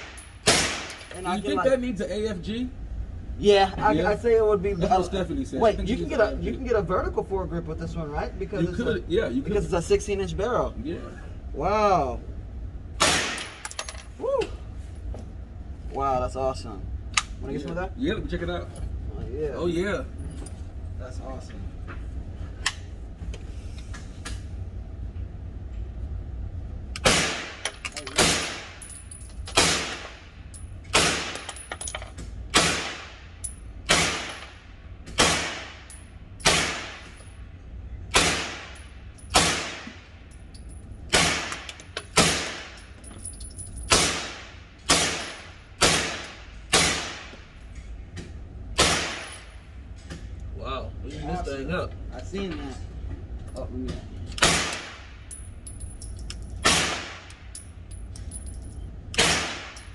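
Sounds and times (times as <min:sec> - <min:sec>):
single gunshots ringing: 0:00.0 - 0:01.2, 0:13.0 - 0:13.6, 0:27.0 - 0:27.6, 0:28.2 - 0:28.8, 0:29.6 - 0:30.2, 0:32.5 - 0:33.2, 0:33.9 - 0:34.5, 0:35.2 - 0:37.1, 0:38.1 - 0:40.0, 0:43.9 - 0:47.3, 0:48.8 - 0:49.4, 0:54.4 - 0:55.1, 0:59.2 - 0:59.8.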